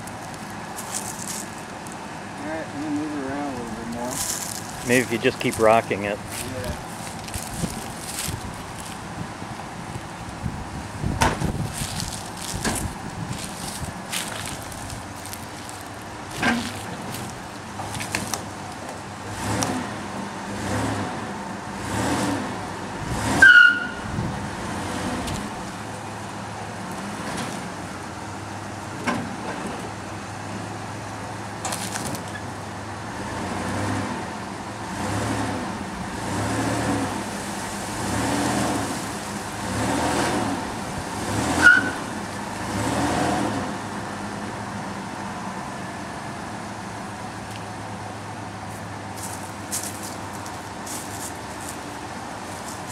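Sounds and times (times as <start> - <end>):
vehicle engine revving: 19.2 - 25.8, 33.1 - 44.3
brief high squeaks: 41.6 - 42.0.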